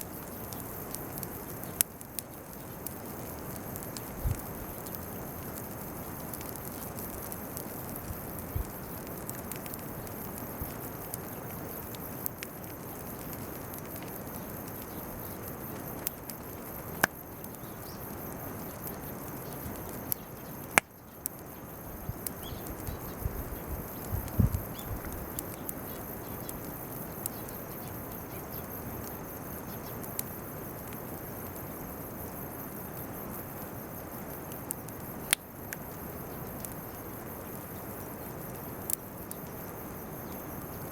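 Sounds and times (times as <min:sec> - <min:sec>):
bonfire crackling and popping: 0:00.0 - 0:40.9
insect chirring: 0:00.0 - 0:40.9.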